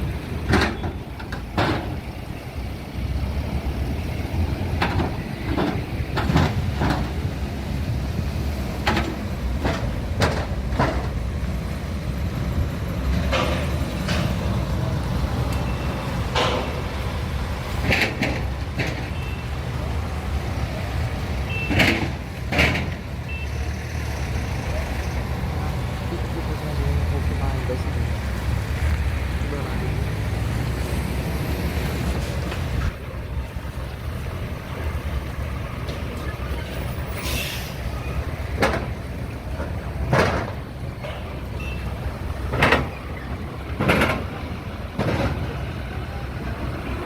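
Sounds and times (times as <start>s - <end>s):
heavy machinery rumbling: 0.0s - 47.0s
metal clanks and knocks: 0.3s - 2.1s, 4.7s - 7.3s, 8.8s - 11.3s, 13.1s - 14.7s, 16.2s - 17.1s, 17.7s - 19.3s, 21.6s - 23.1s, 38.2s - 45.6s.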